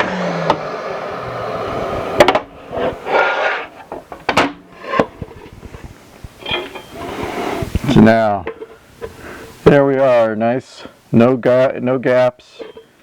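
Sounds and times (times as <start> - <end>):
track saw cutting: 0.0 - 4.0
knocks and clunks of handling: 3.9 - 6.9.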